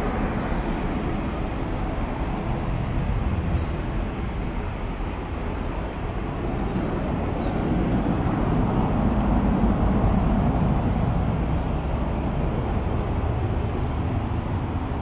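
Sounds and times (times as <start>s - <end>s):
jet engines at high power: 0.0s - 15.0s.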